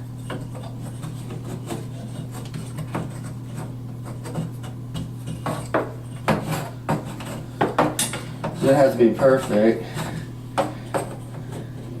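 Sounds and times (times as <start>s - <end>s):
pencil scratching on wood: 0.2s - 7.4s, 8.6s - 10.2s.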